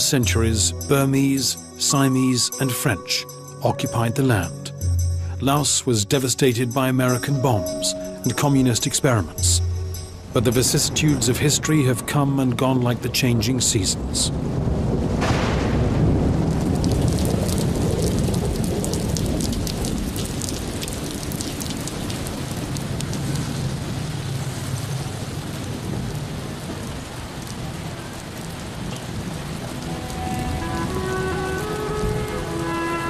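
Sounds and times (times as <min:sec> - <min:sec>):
heavy rain falling: 0:00.0 - 0:04.4, 0:05.2 - 0:33.0
low rumble of thunder: 0:14.3 - 0:32.5.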